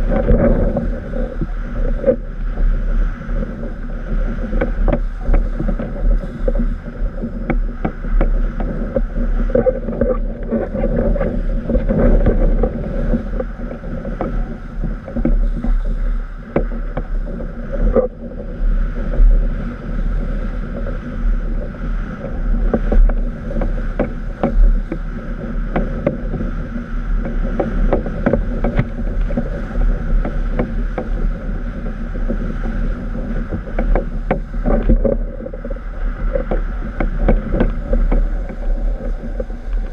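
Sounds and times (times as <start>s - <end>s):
board rushing over choppy water: 0.0s - 39.9s
strong wind buffeting microphone: 0.0s - 39.9s.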